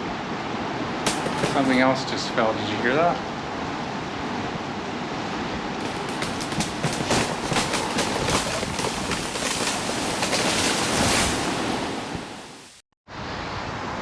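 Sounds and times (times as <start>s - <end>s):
strong gusting wind through trees: 0.0s - 14.0s
crackling and snapping: 1.0s - 1.8s, 5.8s - 11.7s.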